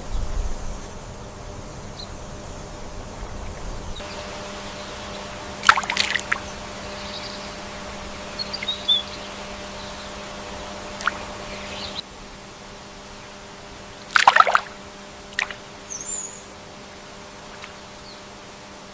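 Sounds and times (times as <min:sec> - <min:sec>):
water trickling and splashing: 0:05.6 - 0:06.4, 0:10.9 - 0:11.3, 0:14.1 - 0:15.7
faint high bird chirp: 0:08.3 - 0:10.2, 0:15.9 - 0:16.5.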